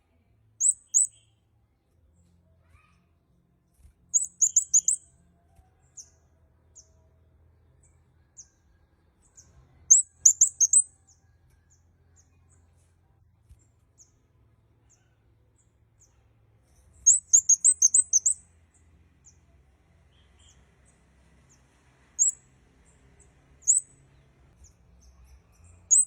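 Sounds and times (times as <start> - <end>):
bird high thin chirps: 0.6 - 1.3, 4.1 - 5.0, 9.9 - 10.9, 17.0 - 18.4, 23.6 - 23.9, 25.2 - 26.0.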